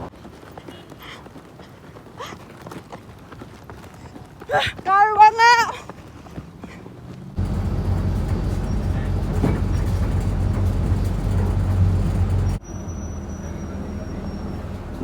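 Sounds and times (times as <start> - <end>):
bus engine drone: 6.5 - 15.0.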